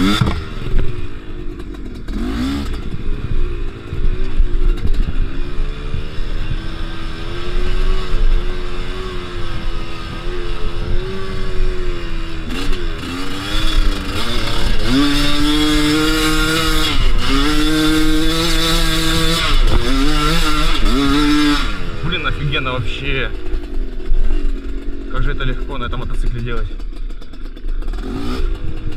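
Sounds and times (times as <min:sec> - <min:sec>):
two-stroke motorcycle engine revving: 0:00.0 - 0:28.9.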